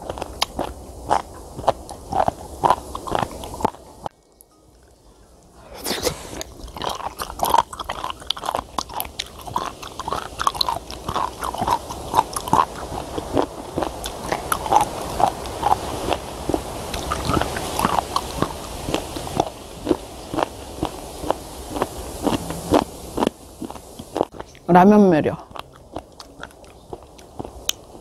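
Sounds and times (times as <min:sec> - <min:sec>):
crisp wet chewing crunches: 0:00.0 - 0:04.5, 0:06.4 - 0:24.7, 0:25.4 - 0:28.0
wind on microphone: 0:05.6 - 0:24.7.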